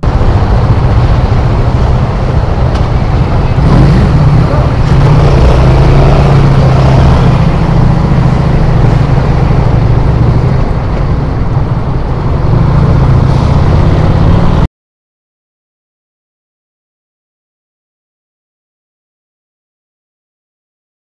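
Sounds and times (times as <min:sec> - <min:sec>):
motorcycle engine running: 0:00.0 - 0:14.6.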